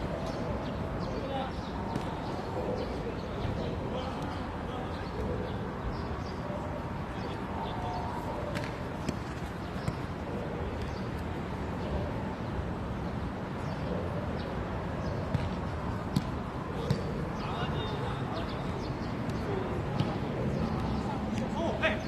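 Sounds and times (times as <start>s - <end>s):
faint distant voices: 0.0s - 22.0s.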